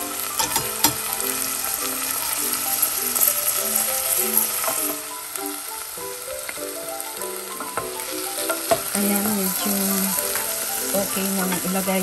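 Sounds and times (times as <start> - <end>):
light background music: 0.0 - 12.0
vegetables sizzling in hot oil: 0.0 - 12.0
wooden spoon knocking pot: 7.6 - 9.4.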